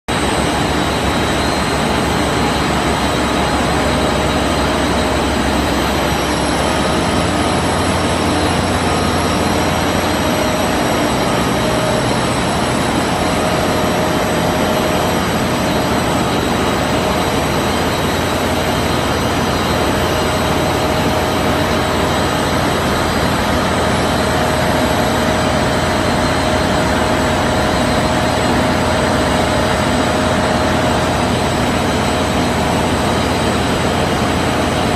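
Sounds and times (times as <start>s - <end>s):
machine whining tones: 0.1s - 34.9s
washing machine running: 0.1s - 34.9s.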